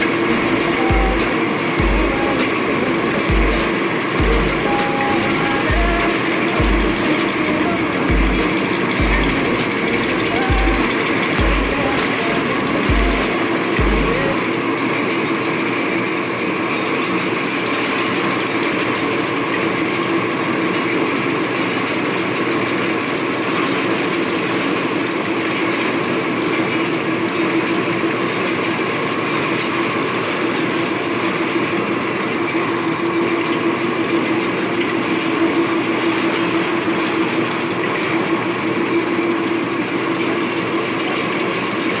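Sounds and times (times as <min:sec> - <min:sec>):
steady whine: 0:00.0 - 0:19.3
metal lathe running: 0:00.0 - 0:42.0.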